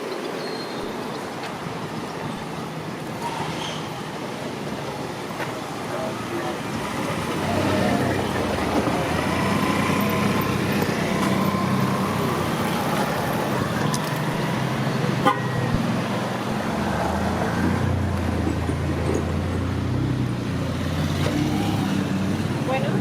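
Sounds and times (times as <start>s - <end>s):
vehicle engines running: 0.9s - 23.0s
car horn toots: 15.2s - 15.8s.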